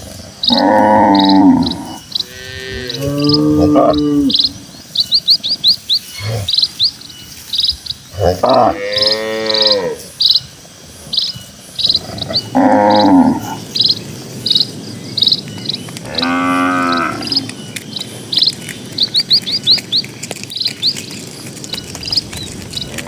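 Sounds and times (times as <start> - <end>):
small bird chirping: 0.0 - 23.0
cow mooing: 0.4 - 4.6, 8.2 - 10.0, 12.1 - 13.6, 16.0 - 17.5.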